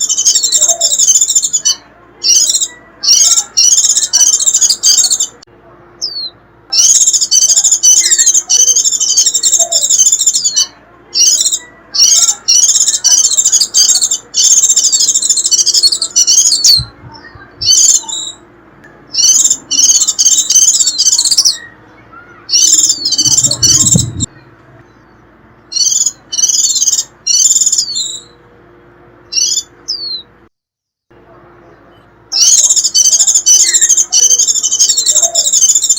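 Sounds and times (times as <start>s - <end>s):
bird twittering calls: 6.0s - 18.4s, 19.1s - 28.4s, 29.3s - 30.3s, 32.0s - 35.9s.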